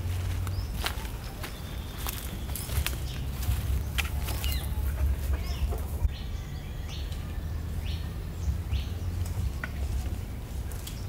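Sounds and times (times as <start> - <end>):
birds chirping: 0.0 - 11.0
steady low rumble: 0.0 - 11.0.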